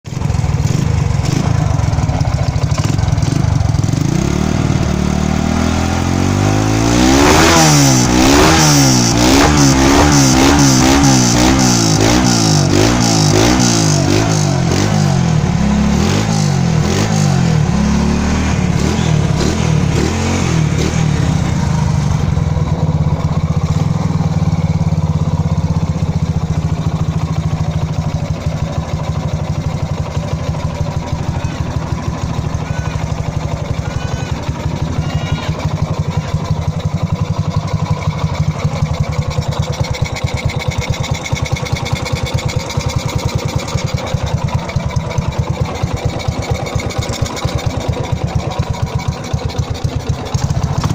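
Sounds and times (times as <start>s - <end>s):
motorcycle engine idling: 0.1s - 50.9s.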